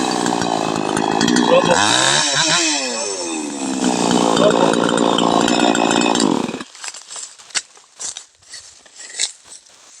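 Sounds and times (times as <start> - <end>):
chainsaw engine running: 0.0 - 6.7.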